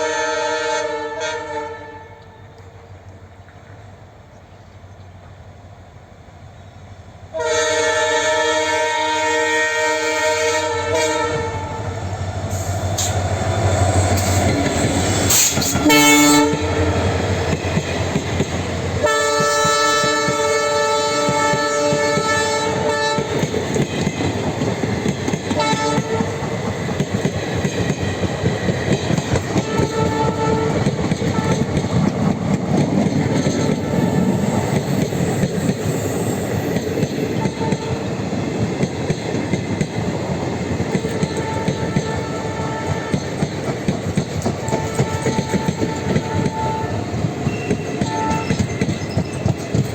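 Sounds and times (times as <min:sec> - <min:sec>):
locomotive horn blasts: 0:00.0 - 0:02.6, 0:07.3 - 0:13.1, 0:15.3 - 0:17.1, 0:19.0 - 0:23.5, 0:25.6 - 0:26.4, 0:29.5 - 0:31.8, 0:41.3 - 0:43.4, 0:44.6 - 0:48.7
train wheels clattering over rails: 0:12.0 - 0:49.9.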